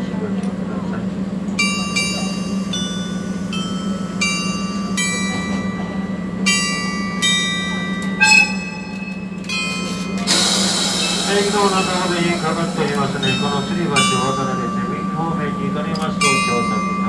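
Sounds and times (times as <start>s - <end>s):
steady low hum: 1.6s - 5.6s, 10.3s - 17.0s
bell-like chime melody: 1.6s - 8.1s, 11.0s - 17.0s.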